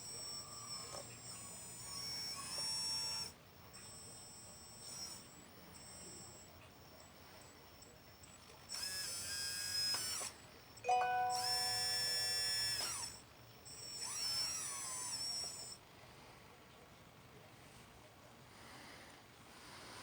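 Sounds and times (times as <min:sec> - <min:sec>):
small electric motor whining: 0:00.0 - 0:15.9.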